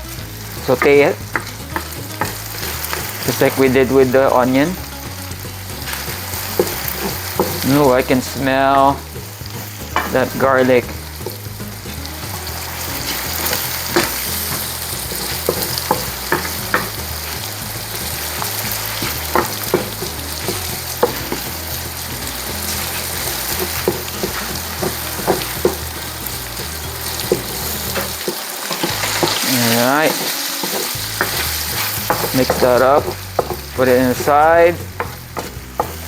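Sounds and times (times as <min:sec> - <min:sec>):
garlic and onion sizzling: 0:00.0 - 0:36.0
utensil scraping a pot: 0:09.9 - 0:36.0.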